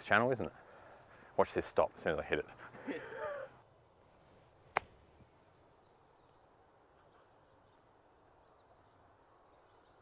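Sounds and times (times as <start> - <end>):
golf club striking ball: 4.7 - 5.0.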